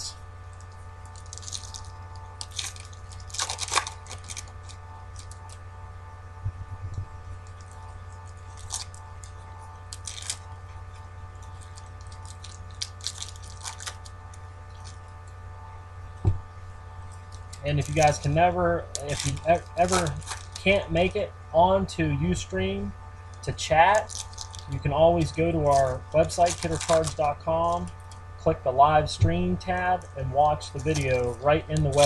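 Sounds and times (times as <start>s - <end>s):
steady low hum: 0.0s - 32.0s
foil wrappers crinkling and tearing: 0.5s - 5.7s, 7.2s - 15.4s, 17.0s - 21.2s, 23.3s - 28.3s, 29.6s - 32.0s.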